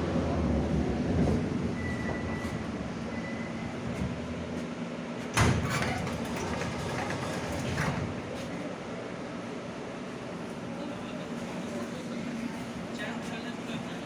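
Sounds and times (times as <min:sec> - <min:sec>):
metro car humming: 0:00.0 - 0:14.0
train doors opening with thump: 0:05.2 - 0:08.6.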